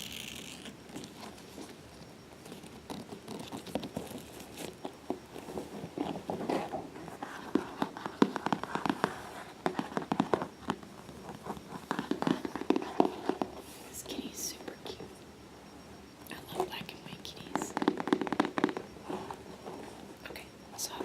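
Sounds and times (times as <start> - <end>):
hands tapping fabric carrier: 11.9 - 13.5, 17.7 - 18.8.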